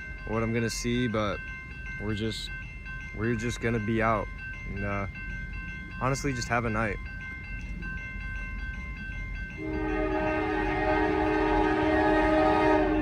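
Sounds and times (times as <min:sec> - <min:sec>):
locomotive air horn blast: 0:09.6 - 0:13.0.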